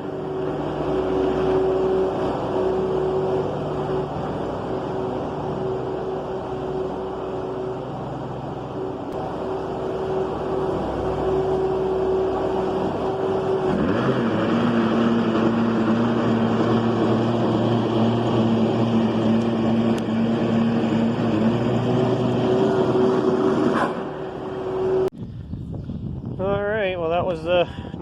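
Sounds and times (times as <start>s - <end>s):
loader engine revving: 0.0s - 25.1s.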